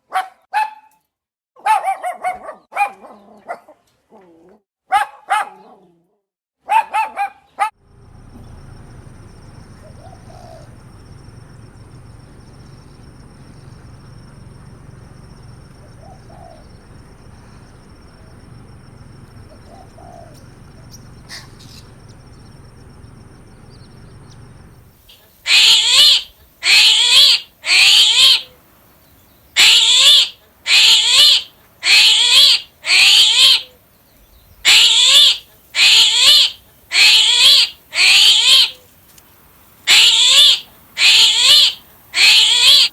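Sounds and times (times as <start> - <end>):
bird harsh calls: 25.1 - 28.6, 29.3 - 38.8, 39.9 - 42.9.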